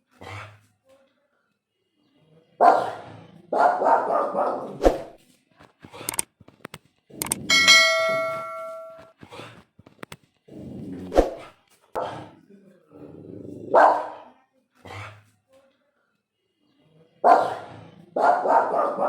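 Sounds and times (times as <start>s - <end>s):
dog barking: 2.6s - 5.1s, 12.0s - 12.3s, 13.7s - 14.3s, 17.2s - 19.0s
ringing bell-like tone: 7.5s - 9.0s.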